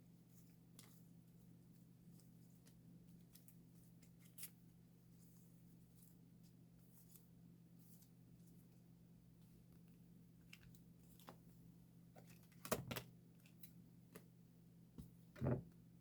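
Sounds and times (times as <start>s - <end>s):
low steady hum: 0.0s - 16.0s
plastic sleeves clicking and rustling: 12.2s - 14.3s.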